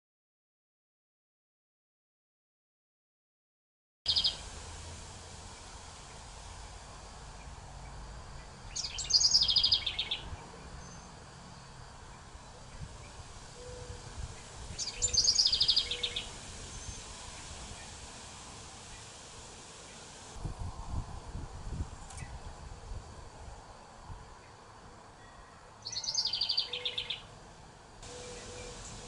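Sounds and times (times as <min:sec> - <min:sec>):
trilling songbird: 0:04.1 - 0:04.4, 0:07.4 - 0:11.2, 0:12.4 - 0:17.9, 0:25.8 - 0:27.3, 0:28.1 - 0:29.0
outdoor background noise: 0:04.1 - 0:29.0.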